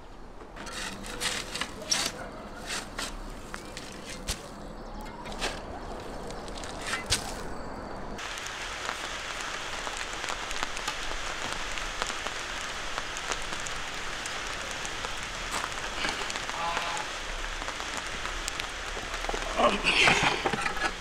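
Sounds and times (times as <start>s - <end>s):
rain pattering: 8.1s - 21.0s.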